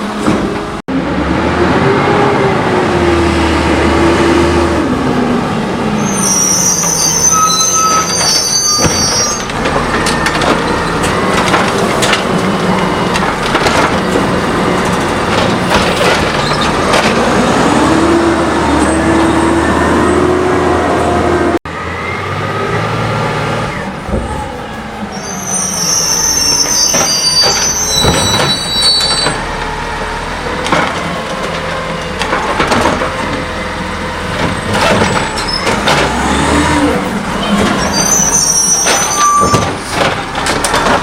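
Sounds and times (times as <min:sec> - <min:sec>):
garbage truck engine: 0:00.0 - 0:41.0
high metallic squeal: 0:06.0 - 0:11.1, 0:25.1 - 0:29.4, 0:37.4 - 0:39.8
clanks and knocks: 0:07.9 - 0:17.4, 0:26.7 - 0:29.4, 0:30.6 - 0:33.6, 0:34.2 - 0:36.8, 0:38.8 - 0:41.0.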